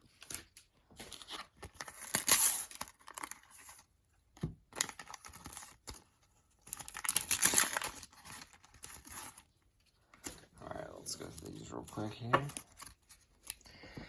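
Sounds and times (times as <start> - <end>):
sticker packets tearing open: 6.6 - 9.4
wrappers crinkling: 6.6 - 9.5.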